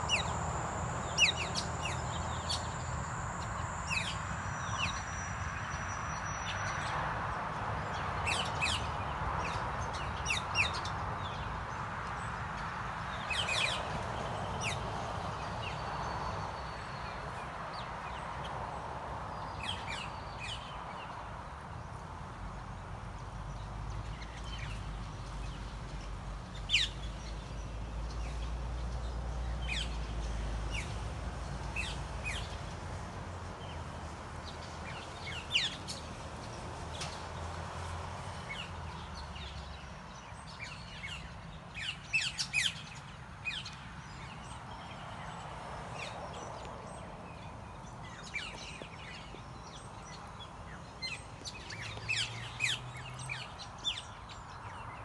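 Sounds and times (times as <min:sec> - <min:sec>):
birds chirping: 0:00.0 - 0:06.8, 0:38.3 - 0:55.0.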